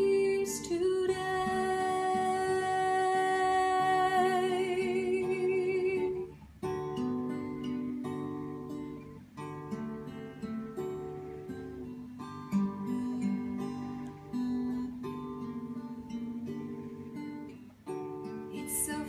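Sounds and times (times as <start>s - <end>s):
woman singing: 0.0s - 6.4s, 18.5s - 19.0s
acoustic guitar strumming: 0.0s - 19.0s.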